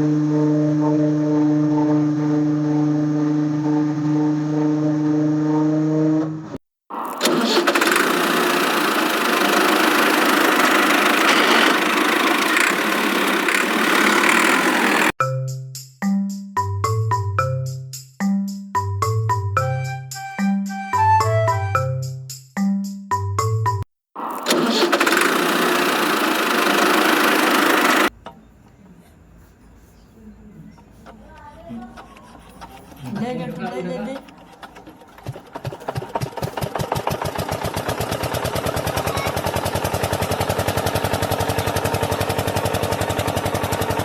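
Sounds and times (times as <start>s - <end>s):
engine running: 0.0s - 15.2s, 24.2s - 28.1s, 34.2s - 44.0s
small motor rattling: 6.9s - 15.2s, 24.2s - 28.2s, 33.7s - 44.0s.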